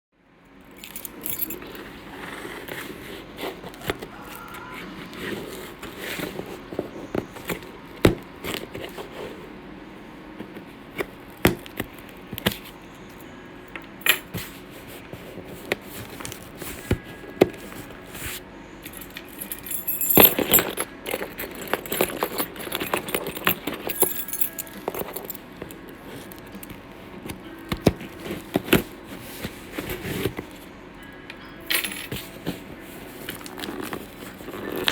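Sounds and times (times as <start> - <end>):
clatter of objects: 18.9 - 30.6.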